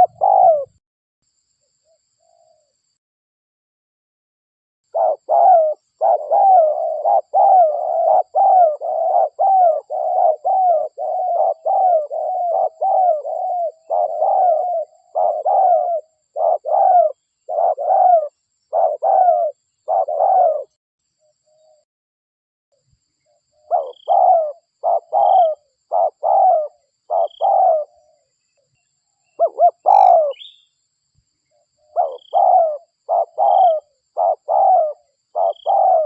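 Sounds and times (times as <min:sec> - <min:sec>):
dove cooing: 0:00.0 - 0:00.8, 0:04.9 - 0:20.8, 0:23.3 - 0:28.3, 0:29.4 - 0:30.6, 0:31.8 - 0:36.0.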